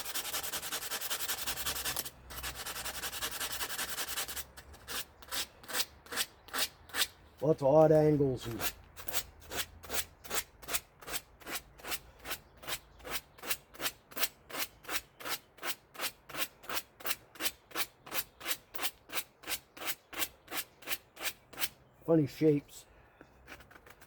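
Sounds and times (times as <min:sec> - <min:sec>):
hand scrubbing rasping strokes: 0:00.0 - 0:07.1.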